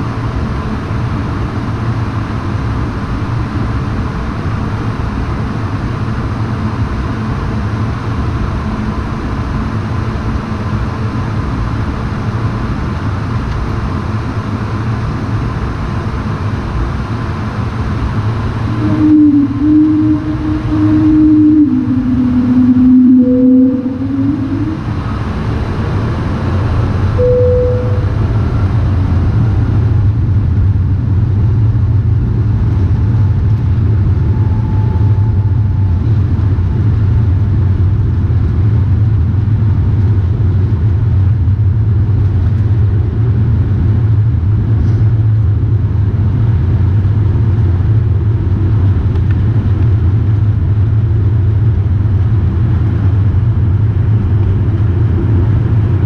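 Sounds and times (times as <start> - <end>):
jet engine roar: 1.0 - 40.2.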